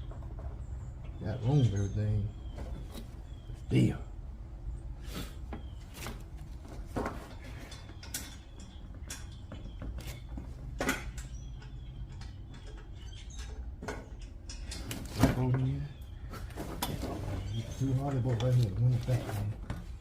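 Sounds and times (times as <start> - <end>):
metal tools clicking and knocking: 7.3 - 15.0.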